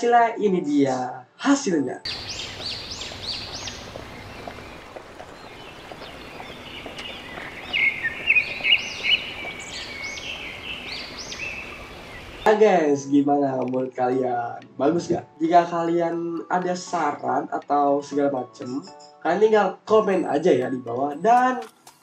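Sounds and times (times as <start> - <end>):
birds chirping: 2.1 - 12.5
outdoor background hiss: 2.1 - 12.5.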